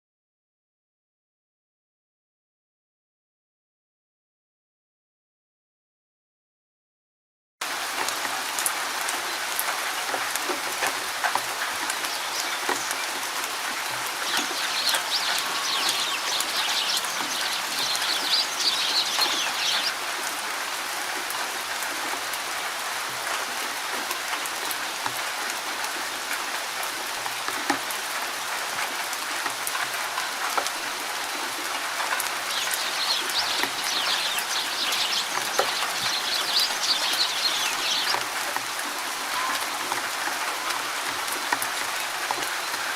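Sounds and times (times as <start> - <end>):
rain pattering: 7.6 - 42.9
birds chirping: 11.5 - 20.3, 32.1 - 38.3.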